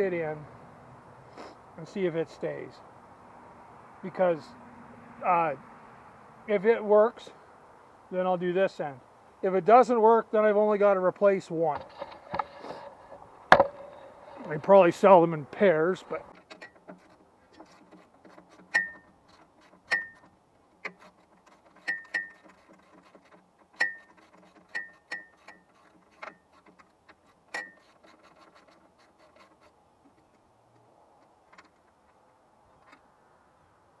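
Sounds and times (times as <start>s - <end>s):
faint handling: 10.8s - 33.1s.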